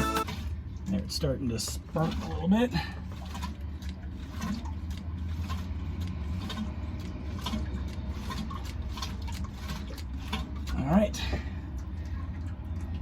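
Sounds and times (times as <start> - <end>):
oil pump humming: 0.0 - 13.0
pump sputtering and sucking air: 0.0 - 13.0.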